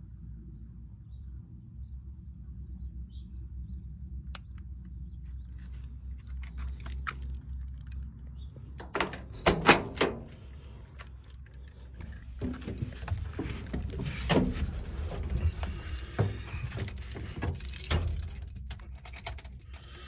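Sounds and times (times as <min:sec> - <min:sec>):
low steady rumble: 0:00.0 - 0:20.0
keys jangling and clicking: 0:06.1 - 0:20.0.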